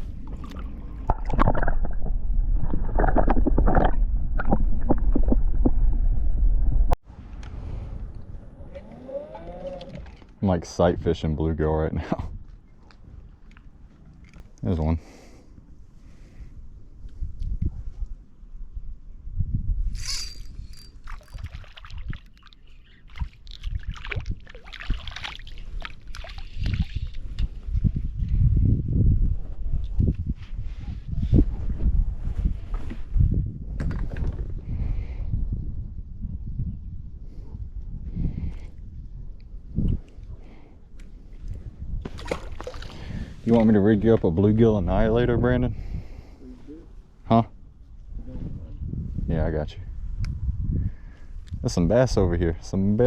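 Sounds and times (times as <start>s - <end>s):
water gurgling and sloshing: 0.0s - 7.0s, 19.9s - 27.5s, 41.2s - 44.2s
heavy low rumble: 0.0s - 8.9s
water splashing at a boat: 21.0s - 27.2s, 42.1s - 43.1s.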